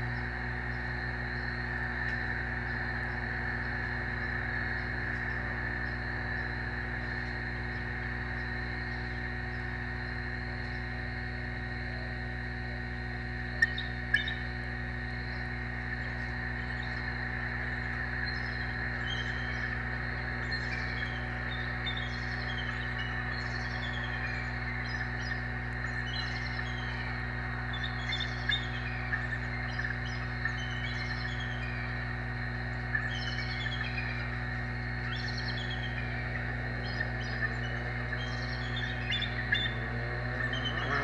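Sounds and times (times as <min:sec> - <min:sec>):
outdoor hiss and hum: 0:00.0 - 0:41.0
bird chirps: 0:13.6 - 0:41.0.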